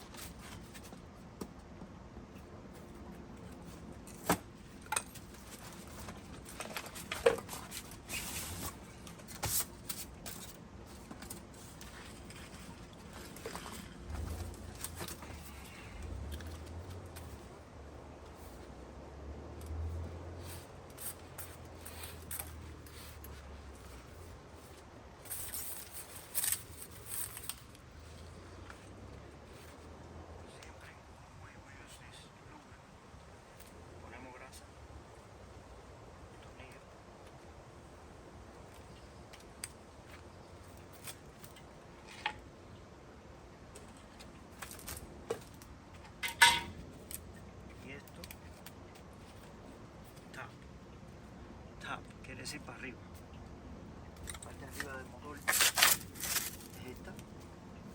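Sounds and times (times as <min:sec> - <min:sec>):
hand tools scraping and clicking: 0:04.0 - 0:17.4, 0:25.2 - 0:27.8, 0:43.8 - 0:47.2, 0:54.2 - 0:57.3
metallic clink: 0:46.2 - 0:46.8.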